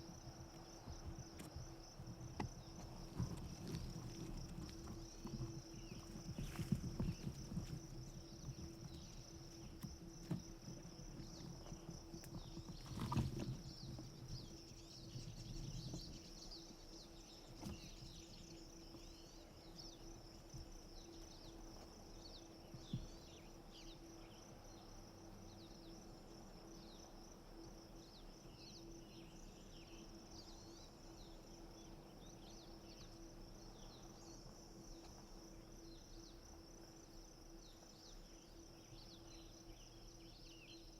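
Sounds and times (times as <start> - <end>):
small birds chirping: 0.0 - 26.0
insect buzz: 0.0 - 40.9.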